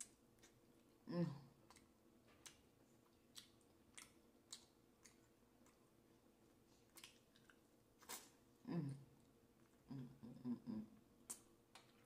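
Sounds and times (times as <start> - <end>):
person chewing: 0.0 - 1.0, 1.6 - 8.6, 11.2 - 12.0.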